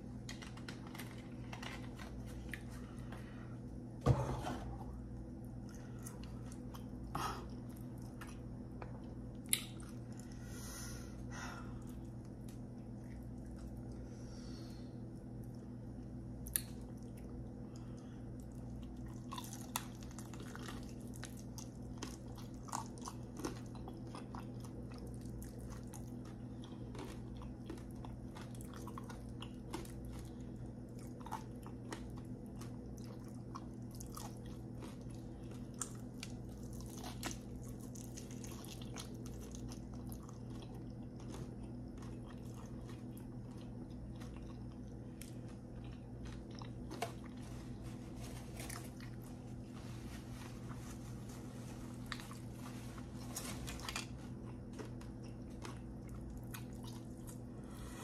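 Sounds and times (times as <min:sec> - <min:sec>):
steady low hum: 0:00.0 - 0:58.0
chewing and biting chicken wings: 0:15.2 - 0:47.8, 0:52.0 - 0:57.5.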